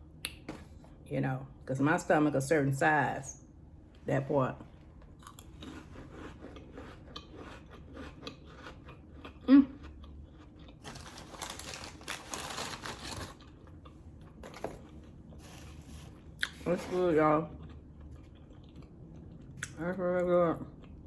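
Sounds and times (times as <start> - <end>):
chewing and crunching crackers: 5.0 - 16.7, 17.4 - 19.8, 20.5 - 21.0.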